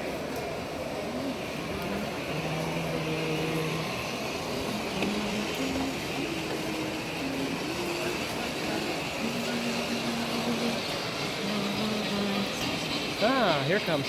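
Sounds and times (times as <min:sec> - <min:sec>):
distant voices: 0:00.0 - 0:14.0
exhibition hall background noise: 0:00.0 - 0:14.0.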